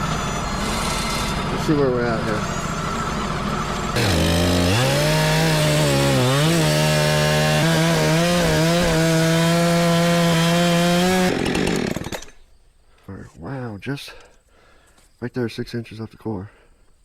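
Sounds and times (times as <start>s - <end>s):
sawmill engine at full throttle: 0.0s - 12.4s
band blade sawing log: 4.0s - 12.4s.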